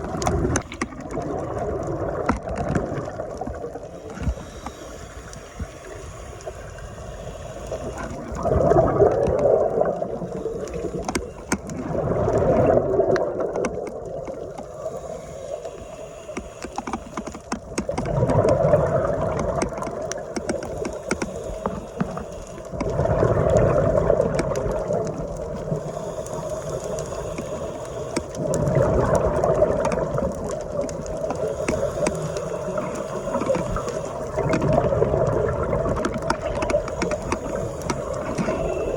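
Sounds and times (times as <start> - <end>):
faint clicks: 0.0 - 38.9
underwater exhaled bubbles: 0.0 - 38.9.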